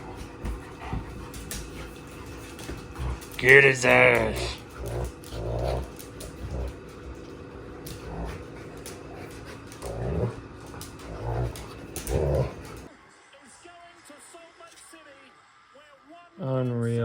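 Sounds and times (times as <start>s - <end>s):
dog growling: 0.0s - 12.9s.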